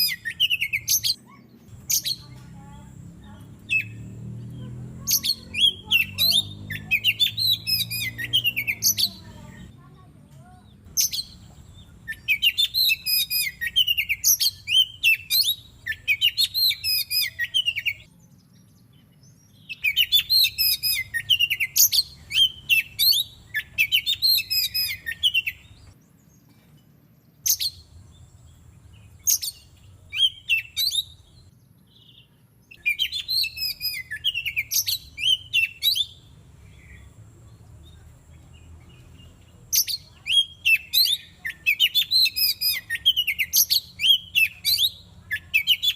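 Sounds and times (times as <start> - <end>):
bird singing whistled phrases: 0.0 - 2.3, 5.0 - 9.3, 12.0 - 18.2, 19.4 - 25.9, 29.2 - 36.2, 39.7 - 45.9.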